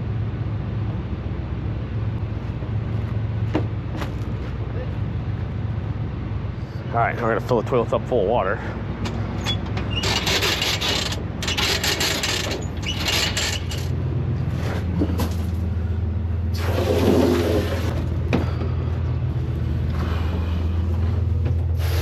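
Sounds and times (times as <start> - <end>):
engine running: 0.0 - 22.0
water rushing from a hose: 16.5 - 18.0.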